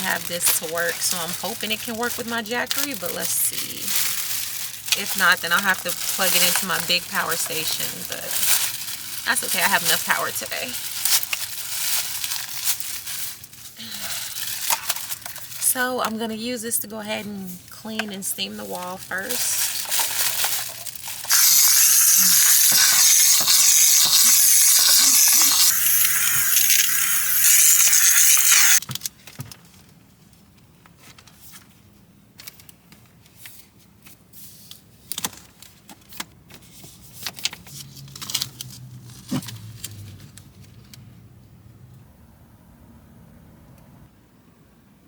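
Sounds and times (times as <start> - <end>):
steam cleaner hissing: 21.2 - 28.8.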